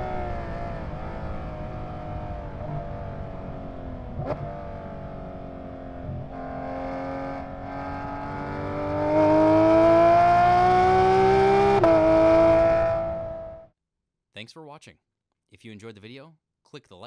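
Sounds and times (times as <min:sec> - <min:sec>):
car engine accelerating: 0:00.0 - 0:13.6.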